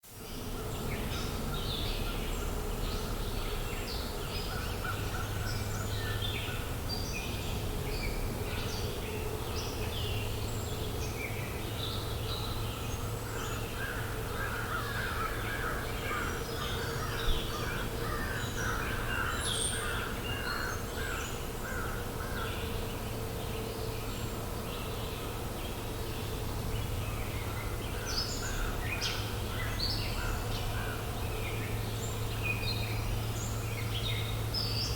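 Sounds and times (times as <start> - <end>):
songbirds chirping and trilling: 0.2 - 34.9
crows cawing: 13.8 - 22.5.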